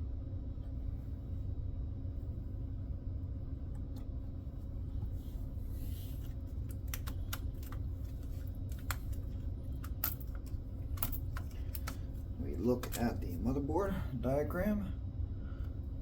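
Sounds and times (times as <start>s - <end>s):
steady low hum: 0.0s - 16.0s
computer parts clicking and tapping: 6.6s - 12.0s.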